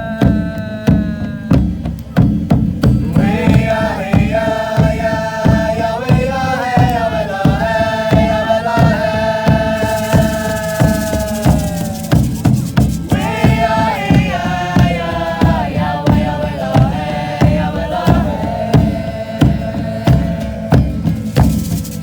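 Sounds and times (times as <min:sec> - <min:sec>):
hand drums beating: 0:00.0 - 0:22.0
shaker: 0:02.9 - 0:22.0.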